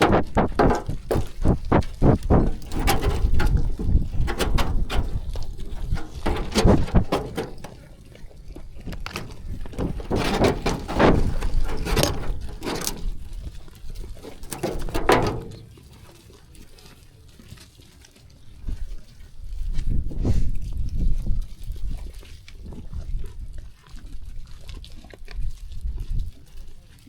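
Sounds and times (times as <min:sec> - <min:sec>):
sheep knocking and thudding: 0:00.0 - 0:15.8.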